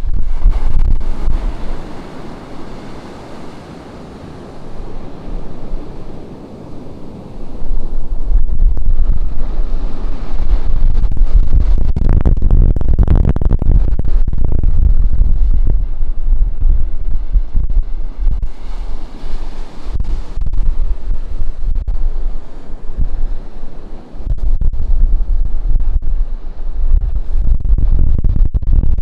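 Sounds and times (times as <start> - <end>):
ocean surf washing on beach: 0.0 - 11.6, 15.4 - 24.4
wind buffeting microphone: 0.0 - 29.0.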